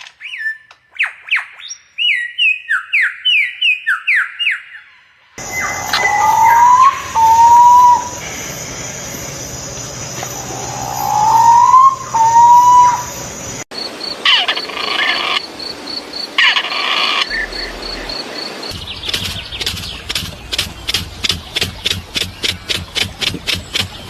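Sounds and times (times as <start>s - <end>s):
bird calls: 0.2s - 15.4s, 16.4s - 24.0s
rising whistled bird note: 5.4s - 9.2s, 10.1s - 13.4s
sharp repeated bird notes: 5.4s - 13.7s, 16.4s - 24.0s.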